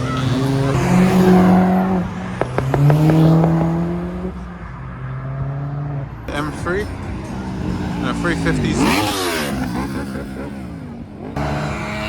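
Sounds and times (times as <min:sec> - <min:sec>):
exhaust cracks: 0:00.0 - 0:04.5
car engine accelerating: 0:00.0 - 0:12.0.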